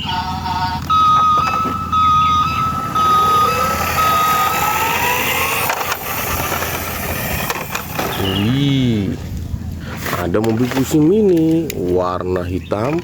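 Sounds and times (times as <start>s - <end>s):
toy vehicle high beeps: 0.0s - 8.7s
electronic engine tone rising: 0.0s - 9.3s.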